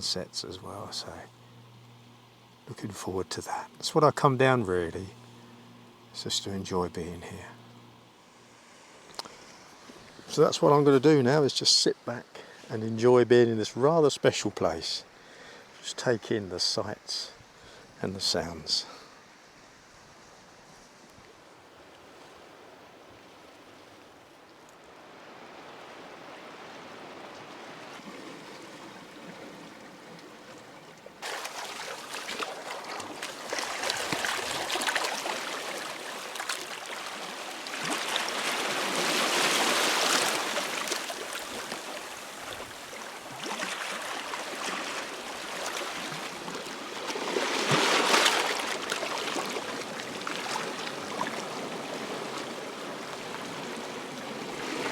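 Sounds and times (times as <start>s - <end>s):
waves breaking on shingle beach: 25.0s - 54.9s.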